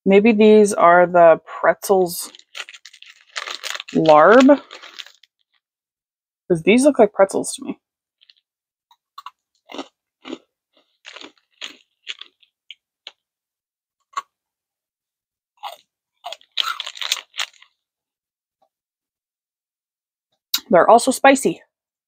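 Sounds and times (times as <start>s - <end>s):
snack stick crunching: 2.3s - 5.6s, 8.2s - 8.4s, 9.2s - 13.2s, 15.6s - 17.8s.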